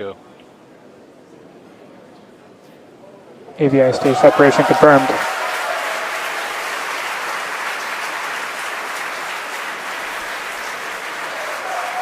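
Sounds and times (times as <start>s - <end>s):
crowd applauding: 3.7s - 12.0s.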